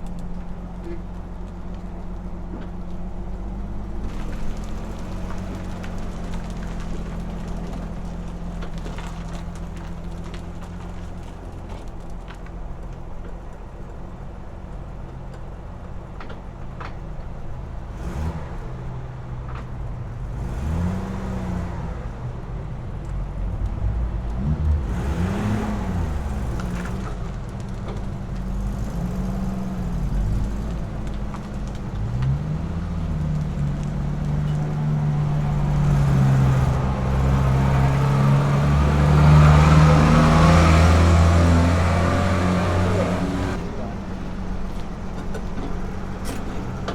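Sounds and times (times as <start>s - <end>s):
car engine accelerating through gears: 17.9s - 22.4s, 23.0s - 46.9s.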